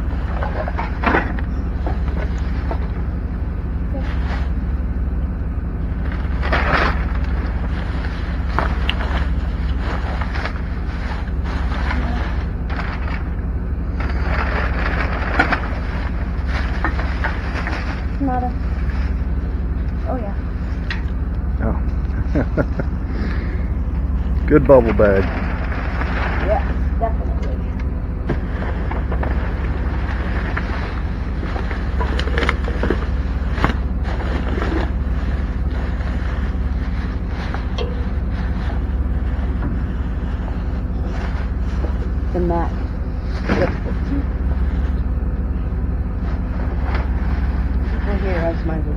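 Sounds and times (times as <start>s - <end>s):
low rumble: 0.0s - 48.9s
rustling: 0.1s - 4.9s, 5.8s - 48.8s
packing material rustling: 28.8s - 42.3s.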